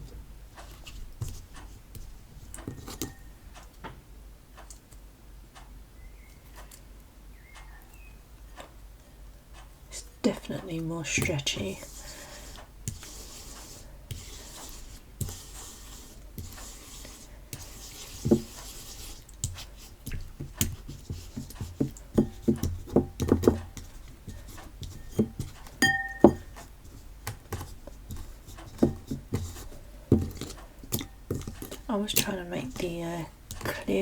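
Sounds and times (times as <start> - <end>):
hands rubbing slime: 11.1 - 23.0, 26.4 - 34.0.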